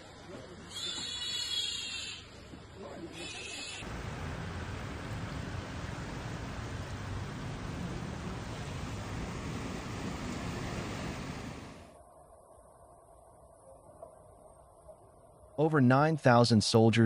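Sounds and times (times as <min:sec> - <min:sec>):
water rushing: 0:03.8 - 0:12.0.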